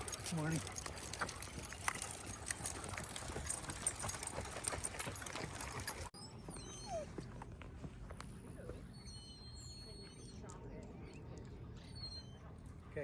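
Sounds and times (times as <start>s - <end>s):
dog footsteps patter: 0.0s - 8.8s.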